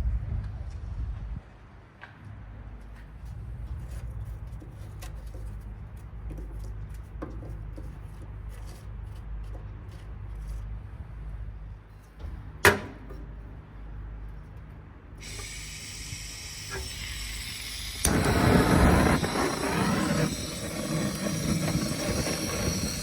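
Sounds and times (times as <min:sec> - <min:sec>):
steady low rumble: 0:00.0 - 0:01.5
coals crackling and clicking: 0:17.8 - 0:23.0.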